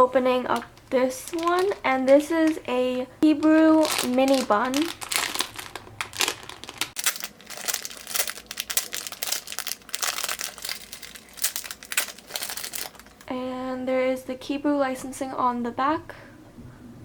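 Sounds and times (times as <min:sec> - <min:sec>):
plastic packaging crinkling: 0:00.5 - 0:13.3.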